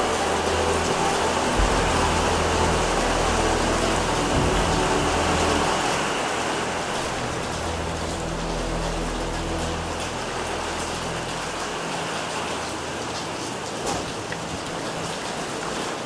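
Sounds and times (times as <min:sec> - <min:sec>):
low hum: 0:00.0 - 0:13.4
heavy rain pouring: 0:00.0 - 0:16.0.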